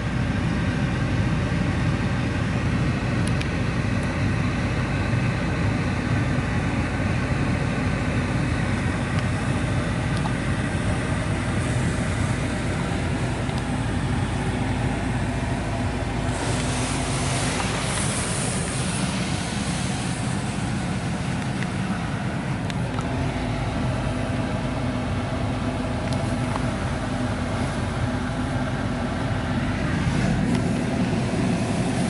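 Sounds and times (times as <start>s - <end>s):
low machinery hum: 0.0s - 32.0s
water spray hissing on car: 15.8s - 22.2s, 29.7s - 32.0s.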